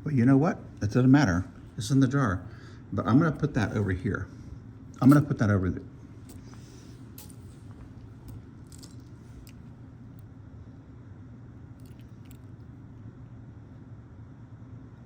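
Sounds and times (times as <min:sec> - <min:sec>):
steady low hum: 0:00.0 - 0:15.0
small metal pieces clinking: 0:06.2 - 0:09.7, 0:11.8 - 0:12.5.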